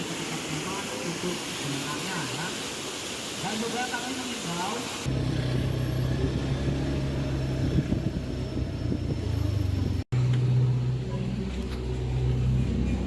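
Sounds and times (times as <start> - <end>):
vehicle engine hum: 5.1 - 13.0.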